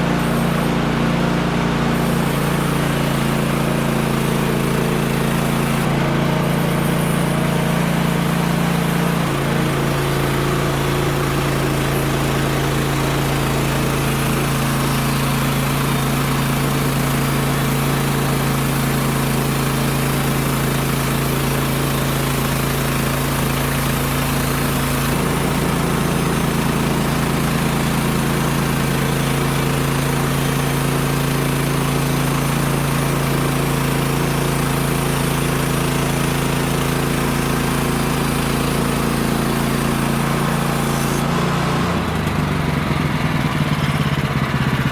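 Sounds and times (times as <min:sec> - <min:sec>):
small gas engine running: 0:00.0 - 0:44.9.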